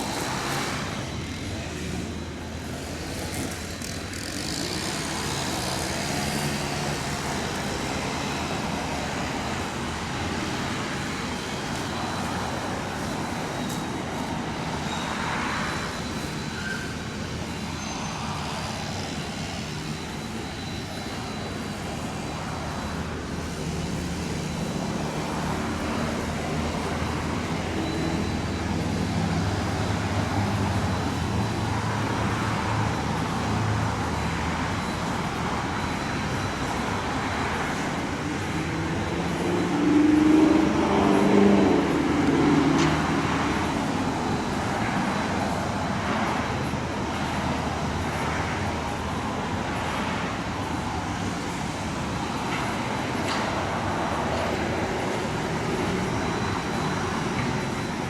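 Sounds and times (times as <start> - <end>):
motor engines running: 15.8 - 58.0.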